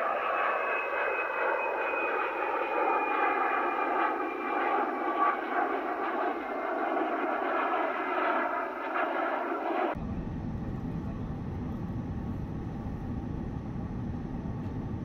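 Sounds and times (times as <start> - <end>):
moving vehicle rumble: 10.0 - 15.0.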